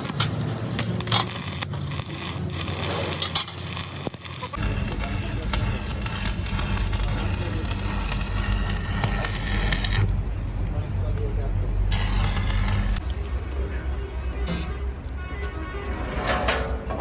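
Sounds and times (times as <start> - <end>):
arc welding crackling: 0.0 - 11.2, 11.8 - 13.0
low machine hum: 4.6 - 13.2.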